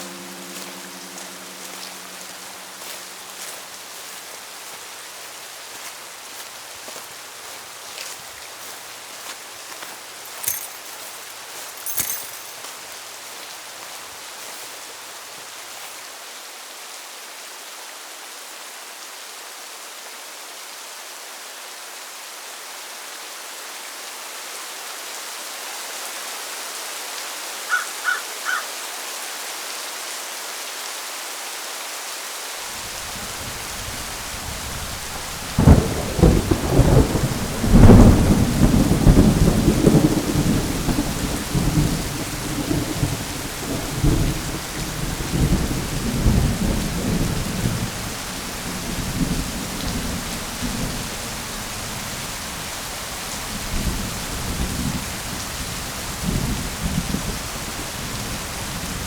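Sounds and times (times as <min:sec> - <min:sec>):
heavy rain: 0:00.0 - 0:59.0
thunder rumbling and cracking: 0:32.9 - 0:51.2.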